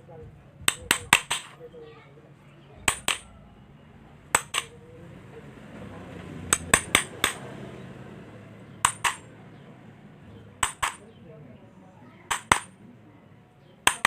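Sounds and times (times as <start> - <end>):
sharp ringing clicks: 4.3 - 4.8, 8.8 - 9.3, 10.6 - 11.1.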